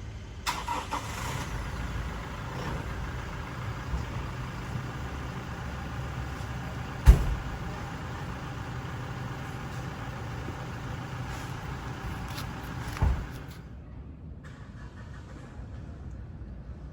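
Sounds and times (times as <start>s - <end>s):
car engine idling: 0.5s - 13.7s.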